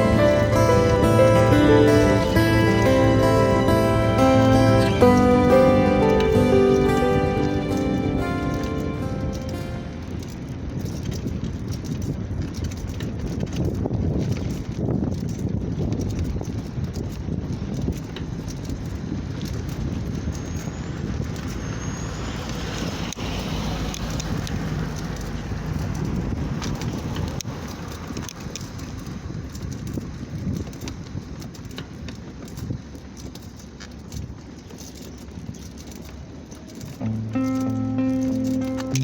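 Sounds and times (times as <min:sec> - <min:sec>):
music: 0:00.0 - 0:10.1, 0:37.0 - 0:39.0
bicycle road noise: 0:00.0 - 0:39.0
wind rushing over microphone: 0:00.0 - 0:39.0.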